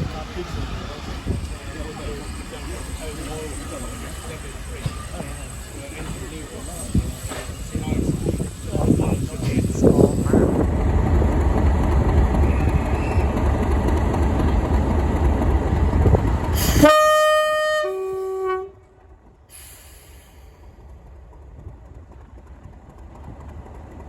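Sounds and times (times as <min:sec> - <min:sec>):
train rumbling: 0:00.0 - 0:24.0
train two-tone horn: 0:16.6 - 0:19.0.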